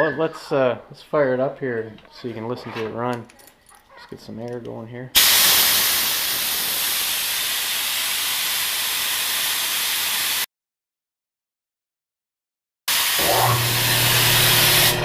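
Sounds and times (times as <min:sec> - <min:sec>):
compressed air hissing: 0:05.2 - 0:10.4.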